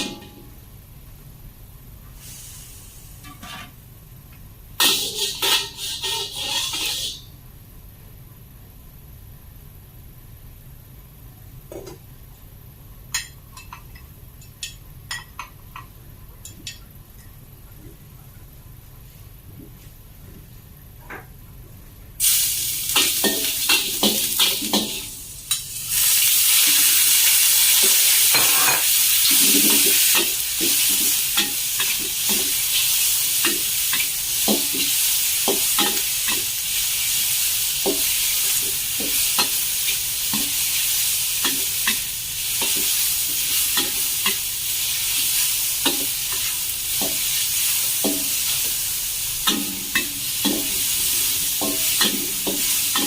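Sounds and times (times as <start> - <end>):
chicken sizzling in a hot pan: 4.8 - 7.3, 22.2 - 53.0
utensil scraping a pan: 4.8 - 7.3.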